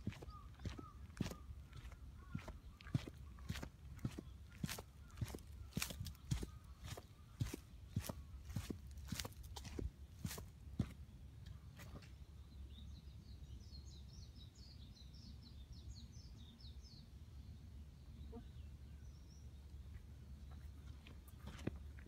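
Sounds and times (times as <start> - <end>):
songbird twittering: 0.0 - 8.7
footsteps on dry leaves: 0.0 - 10.9.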